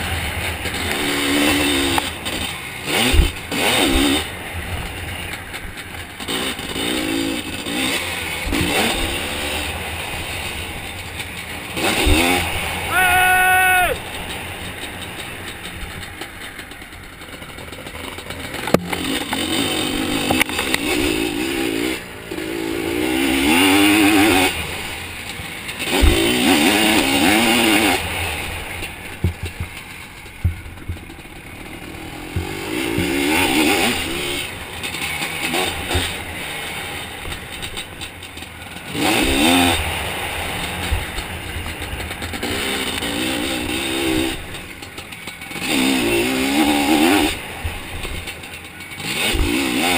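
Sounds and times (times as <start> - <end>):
two-stroke engine revving: 0.0 - 49.9
knocks and clatter: 14.0 - 21.2, 28.7 - 33.6.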